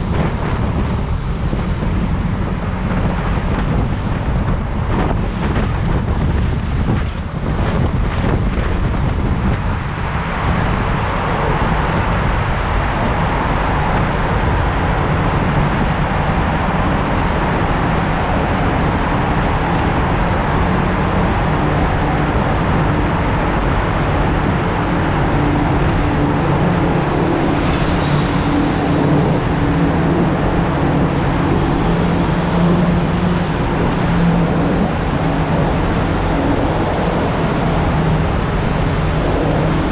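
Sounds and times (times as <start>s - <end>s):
motorcycle engine running: 0.0s - 39.9s
road noise: 0.0s - 39.9s
wind noise: 0.0s - 39.9s.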